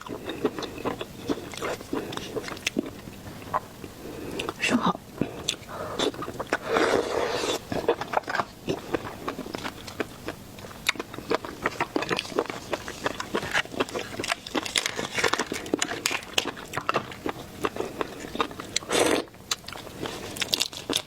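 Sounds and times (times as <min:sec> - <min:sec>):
shellfish shells cracking and crunching: 0:07.7 - 0:18.9, 0:19.5 - 0:21.0.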